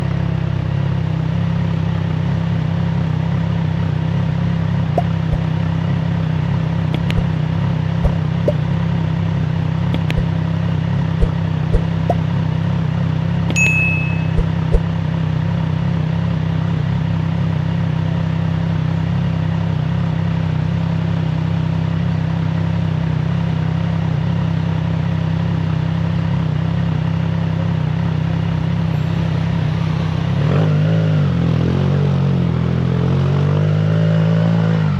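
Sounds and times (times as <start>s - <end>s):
motorcycle engine running: 0.0s - 33.4s
sharp clicks: 7.0s - 7.3s, 9.9s - 10.3s
high beep: 13.5s - 14.9s.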